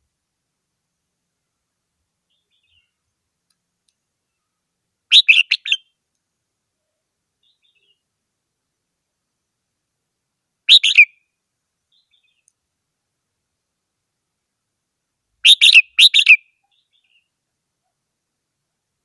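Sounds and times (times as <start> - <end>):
bird singing clear notes: 4.3 - 5.9, 10.7 - 11.1, 15.4 - 17.3.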